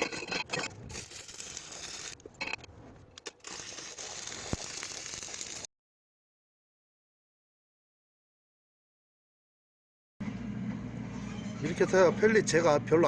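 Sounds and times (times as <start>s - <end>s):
wood pellets burning in stove: 3.4s - 5.7s.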